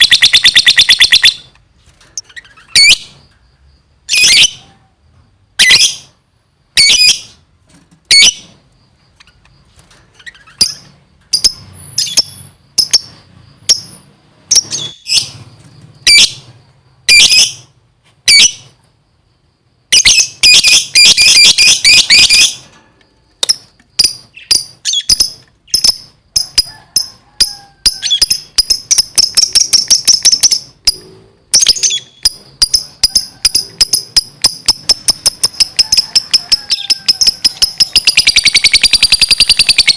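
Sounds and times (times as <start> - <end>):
lovebird chirping: 0.0 - 1.5, 8.1 - 17.7, 19.9 - 22.6, 23.4 - 27.2, 27.9 - 39.9.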